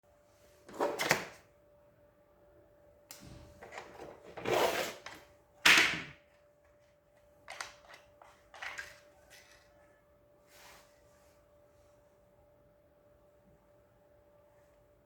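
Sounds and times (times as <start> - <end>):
faint steady hum: 0.1 - 15.0
case scraping: 3.6 - 5.2.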